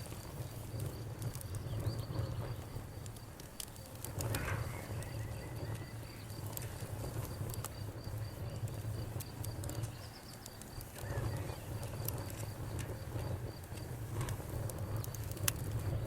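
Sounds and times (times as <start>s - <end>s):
crickets chirping: 0.0s - 16.0s
fluttering rumble of flames: 0.0s - 16.0s
sharp pops of fire: 0.0s - 16.0s
wood fire crackling: 0.0s - 16.0s.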